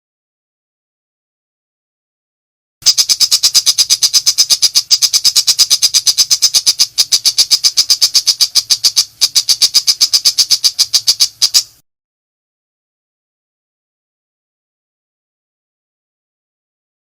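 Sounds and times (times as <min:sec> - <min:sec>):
shrike rapid song: 0:02.8 - 0:11.7.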